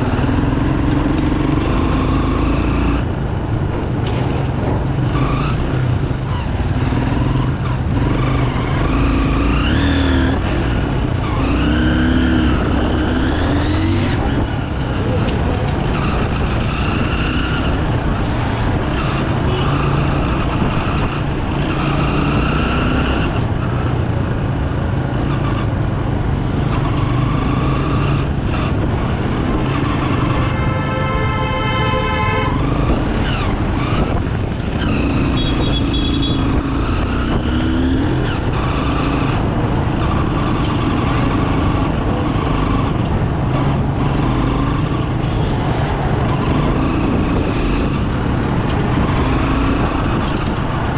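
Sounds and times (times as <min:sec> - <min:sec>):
vehicle horn: 0:30.2 - 0:32.8, 0:35.3 - 0:36.5.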